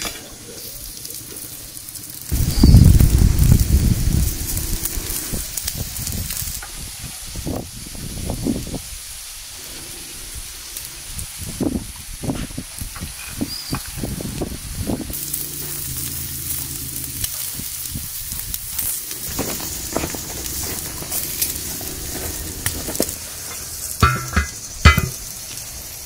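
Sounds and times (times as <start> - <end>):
food sizzling in a pan: 0.0 - 26.0
utensil knocking and scraping: 19.0 - 25.2.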